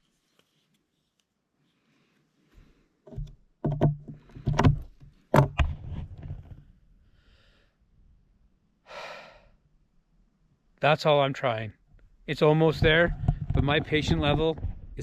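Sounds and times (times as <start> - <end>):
tool slipping thuds: 3.1 - 6.6, 12.7 - 14.8.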